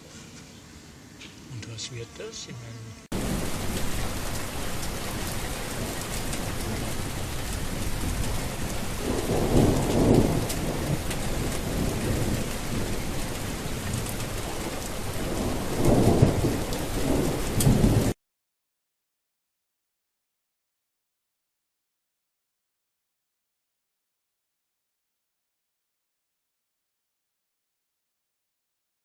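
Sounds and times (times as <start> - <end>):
heavy rain: 3.1 - 18.2
thunder rolling: 3.1 - 18.2.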